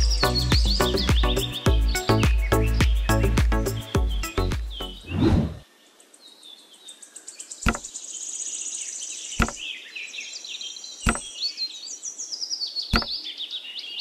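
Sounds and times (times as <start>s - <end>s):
high-pitched bird chirping: 0.0s - 5.6s
sharp knocks of bricks set down: 7.7s - 7.9s, 9.4s - 9.6s, 11.1s - 11.3s.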